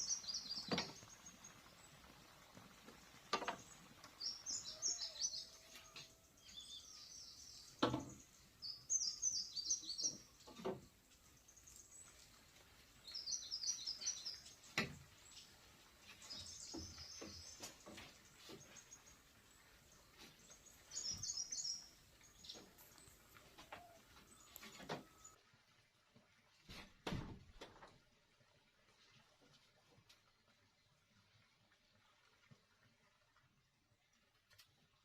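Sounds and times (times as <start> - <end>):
bird chirping: 0.0 - 2.0, 3.5 - 25.4.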